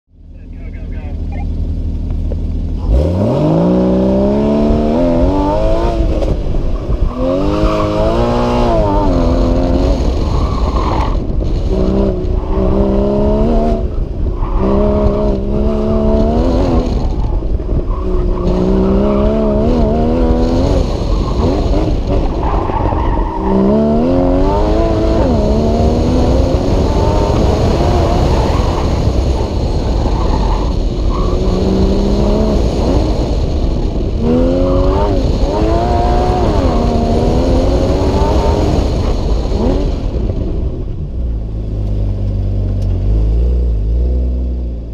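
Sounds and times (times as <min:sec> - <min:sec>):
car engine revving: 0:00.2 - 0:44.9.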